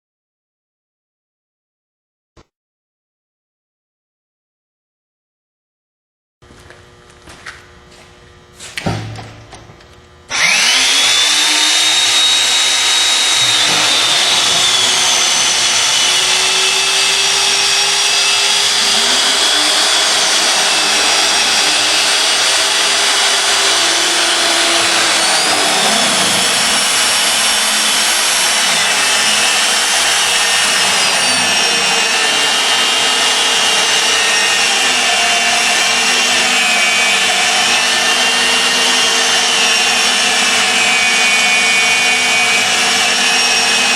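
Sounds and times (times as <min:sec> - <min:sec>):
drilling machine motor whine: 0:09.0 - 0:43.9.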